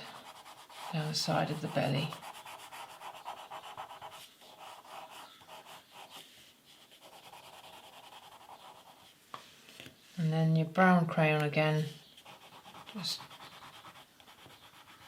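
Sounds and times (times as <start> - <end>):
crayon rubbing on paper: 0.1 - 9.1, 12.2 - 15.0.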